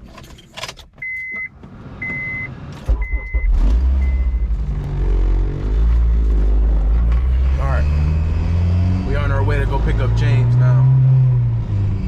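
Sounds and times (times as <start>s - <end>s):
car engine starting and running: 0.0s - 12.0s
car warning chime beeping: 1.0s - 4.5s.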